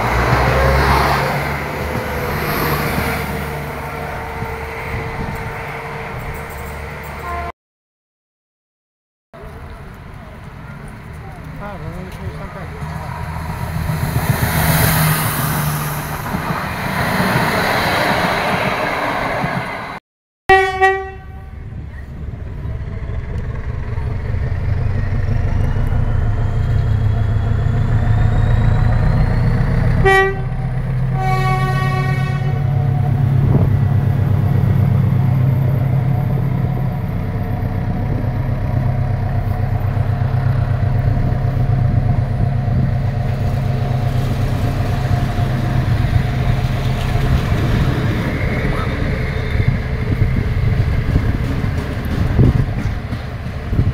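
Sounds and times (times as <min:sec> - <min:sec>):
locomotive engine droning: 0:00.0 - 0:07.5, 0:09.4 - 0:18.1, 0:20.5 - 0:53.9
train running past: 0:00.0 - 0:07.5, 0:09.4 - 0:53.9
locomotive horn: 0:07.2 - 0:07.5, 0:20.5 - 0:21.7, 0:30.0 - 0:32.9.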